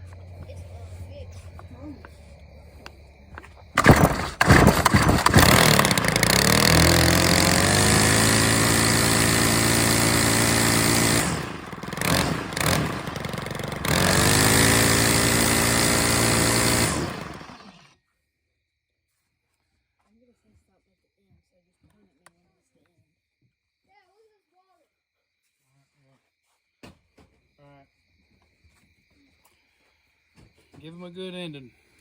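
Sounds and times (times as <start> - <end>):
string trimmer engine running: 3.7 - 17.9.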